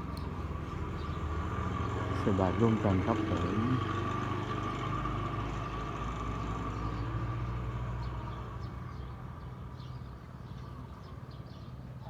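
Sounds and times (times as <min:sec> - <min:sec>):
vehicle engine humming: 0:00.0 - 0:08.1.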